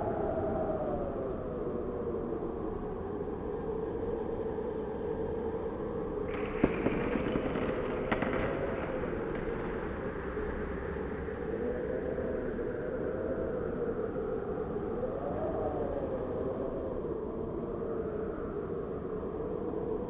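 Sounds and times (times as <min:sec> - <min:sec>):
howling blizzard wind: 0:00.0 - 0:20.0
crackling noise with sharp knocks: 0:06.3 - 0:11.8.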